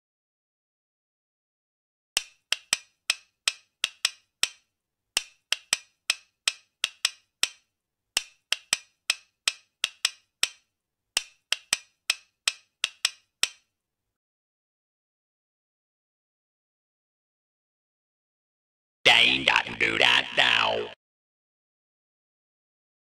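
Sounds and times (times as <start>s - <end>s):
sharp dry clicks: 2.2s - 13.7s.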